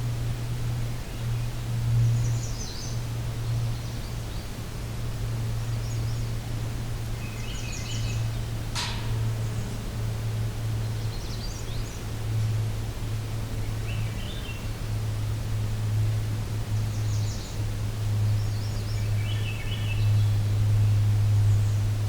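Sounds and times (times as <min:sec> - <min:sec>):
steady low hum: 0:00.0 - 0:22.0
songbirds singing: 0:00.7 - 0:22.0.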